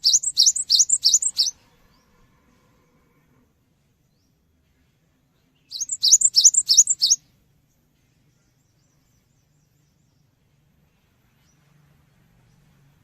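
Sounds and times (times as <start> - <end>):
bird singing sharp high notes: 0.0 - 1.6, 5.7 - 7.2.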